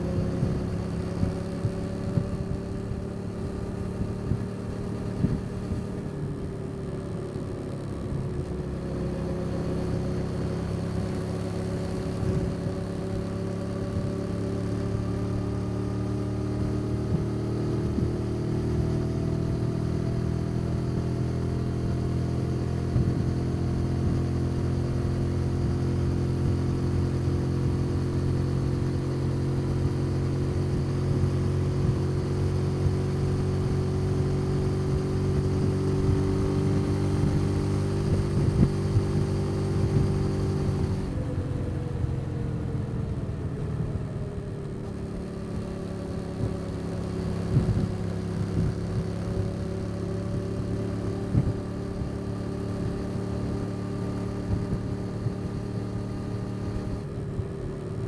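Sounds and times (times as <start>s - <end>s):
motorcycle engine cruising: 0.0s - 58.0s
wind rumble on microphone: 3.8s - 6.0s, 30.6s - 42.0s, 46.3s - 49.5s, 50.3s - 52.2s.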